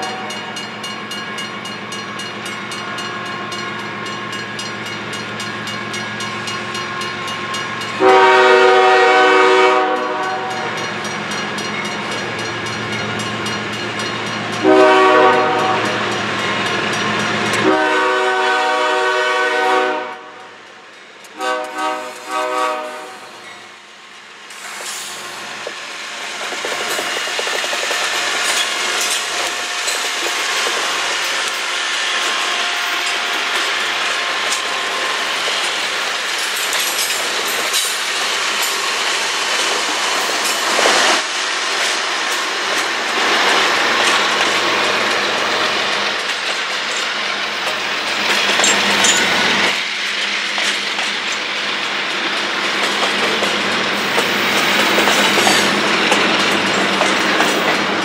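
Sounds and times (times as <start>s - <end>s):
freight train passing: 0.0s - 58.0s
steel wheels clattering: 24.6s - 58.0s.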